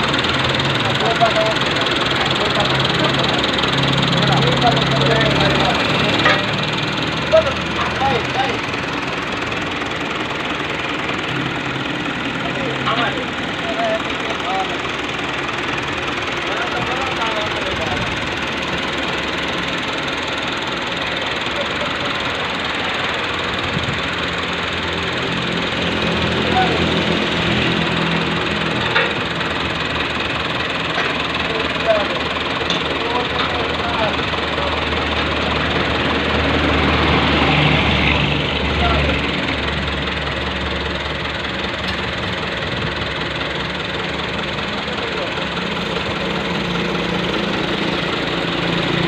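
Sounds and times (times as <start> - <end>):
deep low engine note: 0.0 - 49.0
diesel engine clatter: 0.0 - 49.0.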